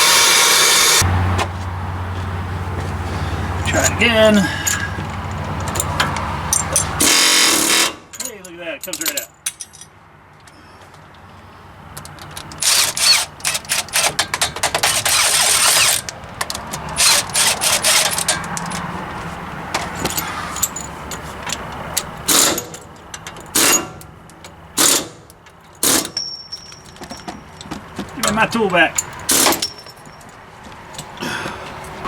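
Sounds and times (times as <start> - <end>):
power tool rattling bursts: 0.0 - 1.0, 7.0 - 8.0, 12.6 - 16.1, 17.0 - 18.5.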